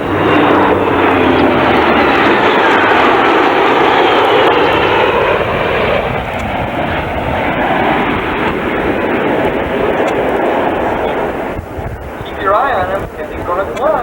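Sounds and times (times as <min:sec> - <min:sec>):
jet aircraft flyby: 0:00.0 - 0:14.0.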